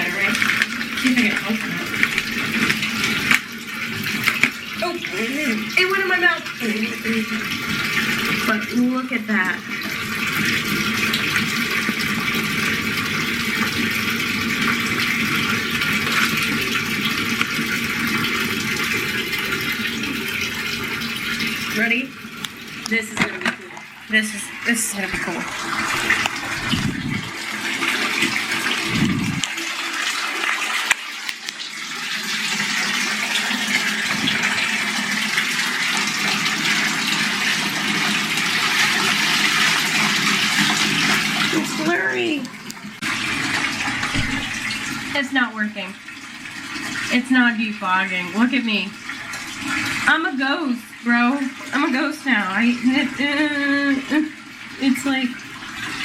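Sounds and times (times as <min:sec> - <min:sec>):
water running from bathtub tap: 0:00.0 - 0:56.0
faucet click: 0:25.0 - 0:27.3, 0:30.9 - 0:31.7.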